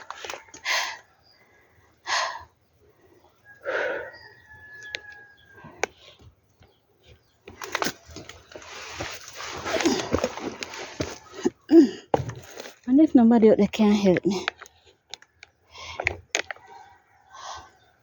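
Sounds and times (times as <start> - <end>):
rooster crowing: 3.5 - 5.7
rustling: 7.5 - 11.5.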